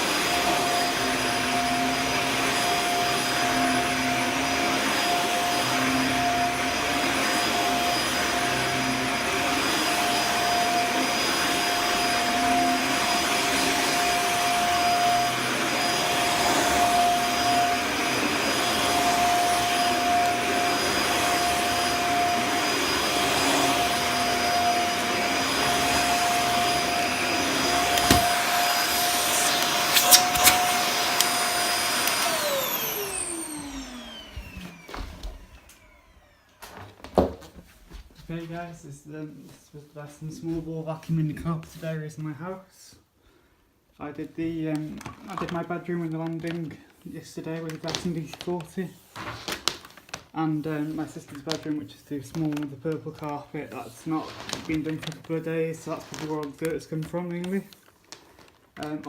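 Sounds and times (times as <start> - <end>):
vacuum cleaner running: 0.0 - 37.3
motor winding down: 27.5 - 36.6.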